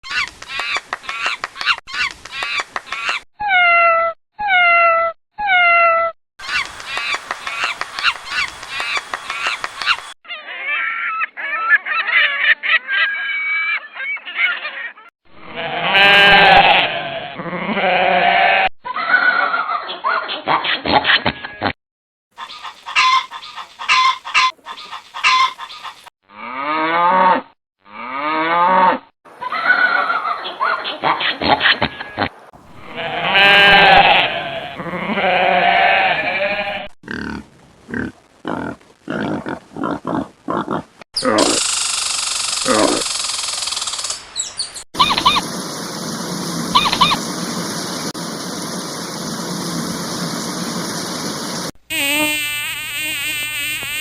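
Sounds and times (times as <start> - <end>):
rapid high-pitched animal calls: 6.4 - 12.1, 22.4 - 26.0, 41.2 - 45.6, 46.7 - 48.1
geese honking: 22.4 - 25.9, 45.0 - 45.5, 46.7 - 47.9.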